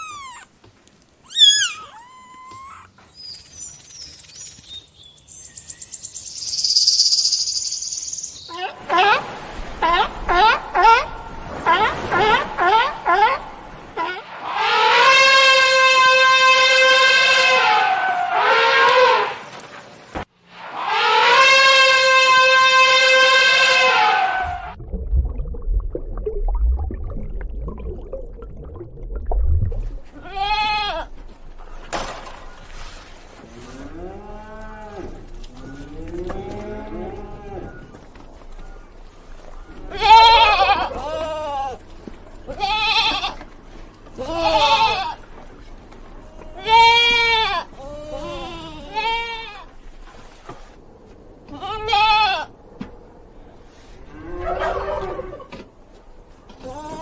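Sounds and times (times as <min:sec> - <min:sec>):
low drawn-out animal call: 0:20.6 - 0:24.8, 0:54.0 - 0:55.6
low rumbling noise: 0:24.5 - 0:30.2
farm animal bleating: 0:30.2 - 0:31.1, 0:39.9 - 0:41.8, 0:42.5 - 0:43.4, 0:44.2 - 0:45.2.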